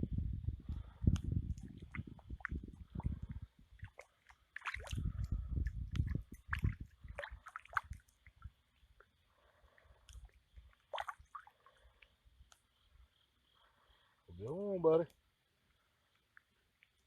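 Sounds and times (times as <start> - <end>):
wet squishing and sloshing: 1.6 - 12.2.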